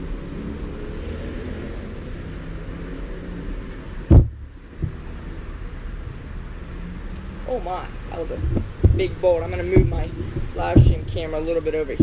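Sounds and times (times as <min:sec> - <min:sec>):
low storm rumble: 0:04.0 - 0:12.0.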